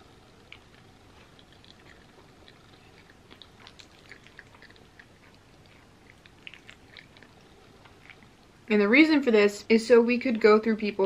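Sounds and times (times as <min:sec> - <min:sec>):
faint chewing with mouth clicks: 0:00.0 - 0:08.7.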